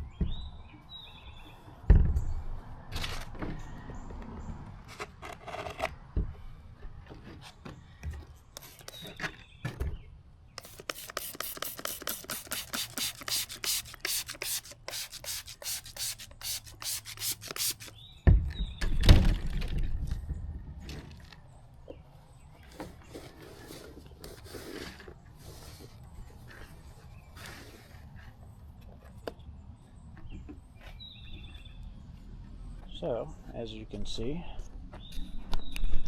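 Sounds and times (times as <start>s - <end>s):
rubbing or scraping strokes: 10.6s - 17.9s.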